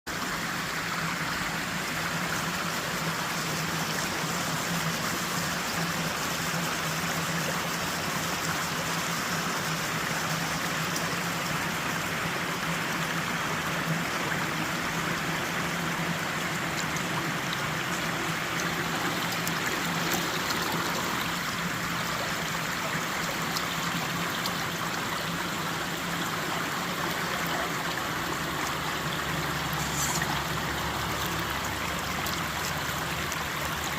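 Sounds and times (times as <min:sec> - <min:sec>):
stream water rushing: 0:00.1 - 0:33.9.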